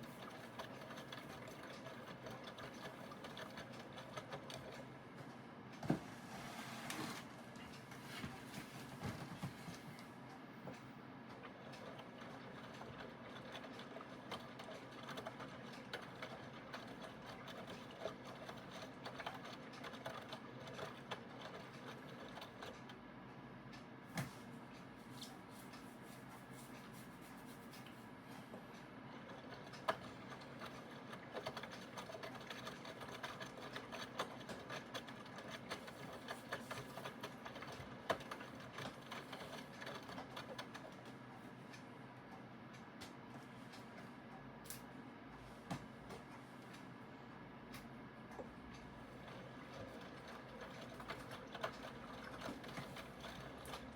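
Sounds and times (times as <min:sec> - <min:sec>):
washing machine motor humming: 0:00.0 - 0:27.3, 0:28.0 - 0:43.4, 0:45.2 - 0:53.9.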